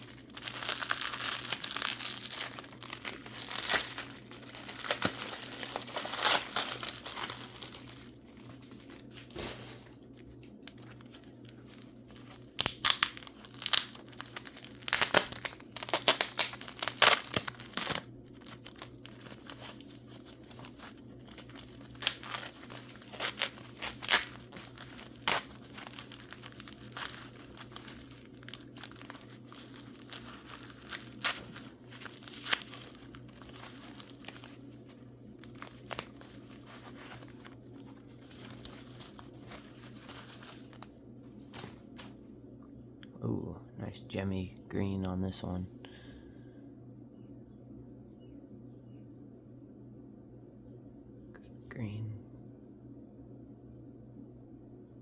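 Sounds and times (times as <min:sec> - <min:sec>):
paper wrapping crinkling and tearing: 0:00.0 - 0:42.2.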